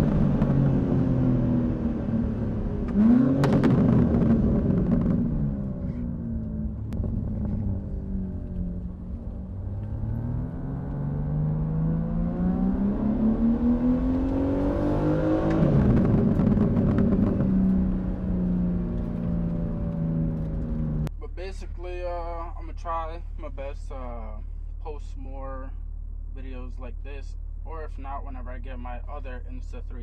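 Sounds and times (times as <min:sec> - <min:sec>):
car engine accelerating: 0:00.0 - 0:24.5.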